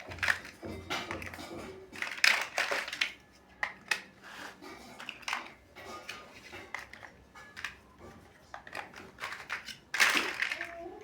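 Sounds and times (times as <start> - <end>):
plastic bricks clicking: 0.0 - 1.4, 2.0 - 4.2, 8.5 - 10.8.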